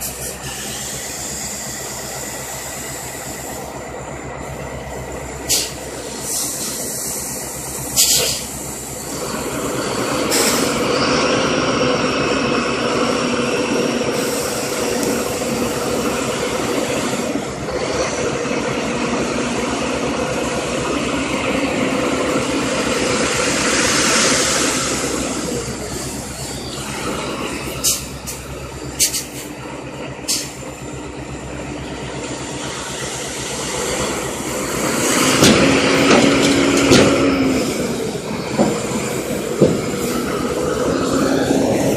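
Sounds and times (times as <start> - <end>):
dump truck engine running: 0.0 - 41.9
sharp hiss bursts: 5.5 - 9.1.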